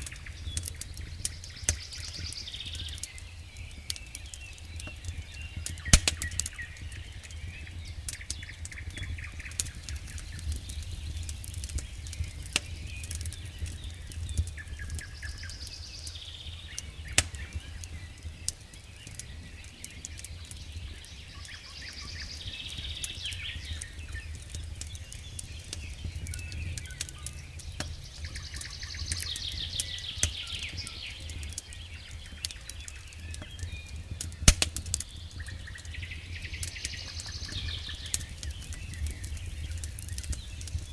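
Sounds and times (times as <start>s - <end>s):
campfire crackling and popping: 0.0s - 40.9s
songbirds trilling: 0.0s - 40.9s.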